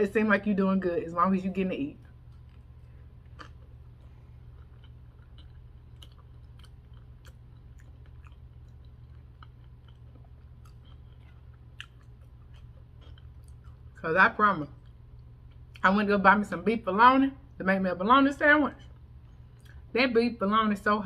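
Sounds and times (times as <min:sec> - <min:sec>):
steady low hum: 0:00.0 - 0:21.0
person chewing food: 0:01.9 - 0:14.0, 0:14.7 - 0:15.8, 0:18.8 - 0:19.9
wet mouth clicks and crunches: 0:02.1 - 0:14.0, 0:18.9 - 0:19.9.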